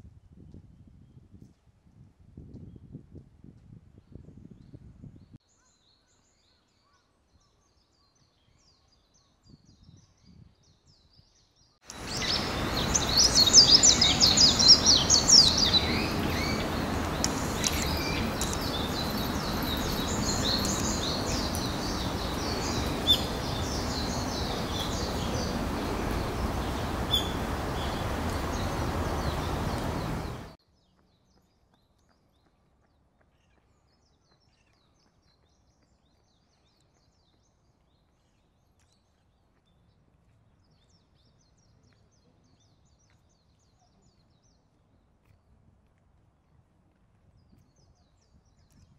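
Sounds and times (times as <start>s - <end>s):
birds chirping and singing: 11.9s - 30.6s
steady background hiss: 11.9s - 30.6s.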